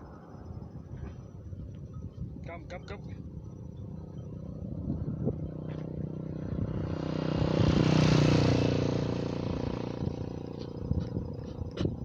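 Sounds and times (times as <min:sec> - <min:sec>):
low engine hum: 0:00.0 - 0:12.0
motor vehicle passing by: 0:03.8 - 0:12.0.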